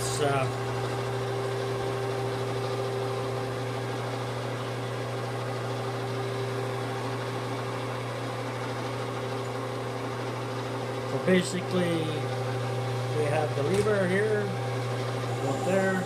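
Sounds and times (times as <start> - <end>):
metal lathe humming: 0.0 - 16.0.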